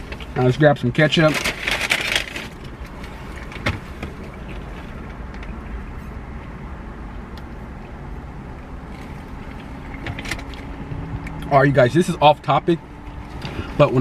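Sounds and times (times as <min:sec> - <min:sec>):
car engine idling: 0:00.0 - 0:14.0
paper bag rustling: 0:01.1 - 0:05.1.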